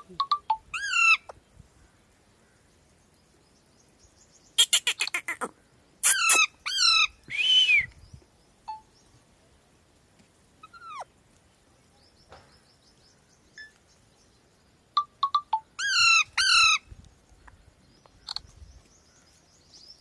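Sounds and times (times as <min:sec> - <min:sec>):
parrot calling and squawking: 0:00.3 - 0:01.3, 0:04.6 - 0:07.2, 0:10.6 - 0:11.1, 0:15.3 - 0:16.8.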